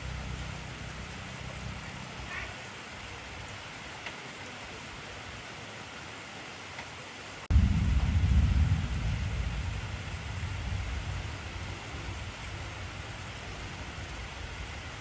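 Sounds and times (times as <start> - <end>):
heavy rain falling: 0.0 - 15.0
thunder rumbling: 7.5 - 15.0.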